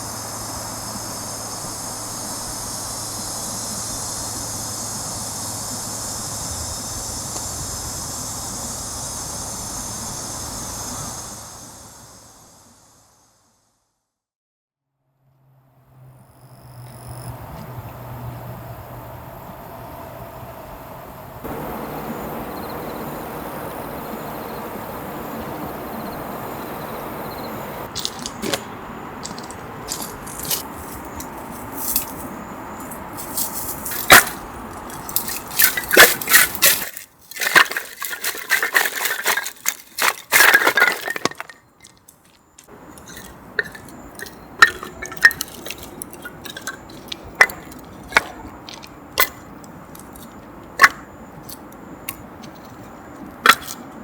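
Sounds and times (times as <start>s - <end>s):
steady hiss: 0.0s - 13.7s
small objects clinking and knocking: 27.9s - 32.2s, 32.8s - 52.9s.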